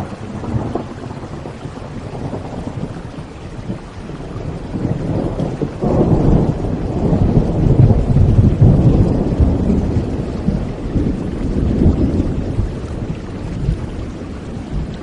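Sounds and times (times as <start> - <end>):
rolling thunder rumble: 0.0 - 15.0
steady rain: 0.0 - 15.0.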